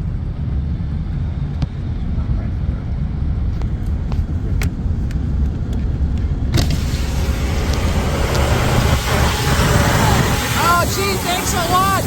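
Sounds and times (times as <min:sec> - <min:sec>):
car road and engine rumble: 0:00.0 - 0:12.0
rain and tyre spray hiss: 0:06.6 - 0:12.0.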